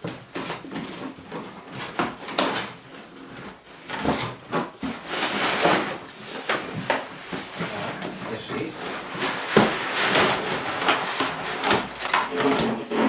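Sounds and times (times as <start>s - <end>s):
knocks and scrapes: 0.0s - 13.0s
packaging rustling: 3.7s - 13.0s.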